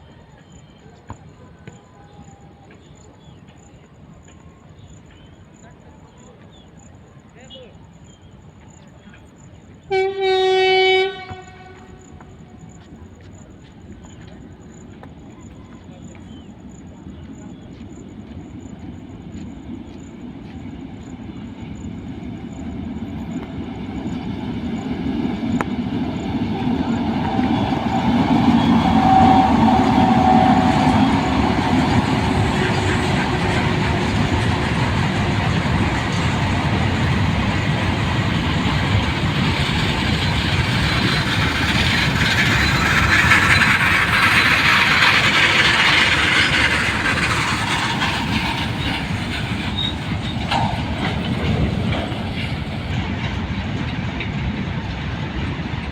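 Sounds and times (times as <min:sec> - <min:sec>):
train passing at speed: 0:00.0 - 0:55.9
wheels rattling on rails: 0:11.3 - 0:55.9.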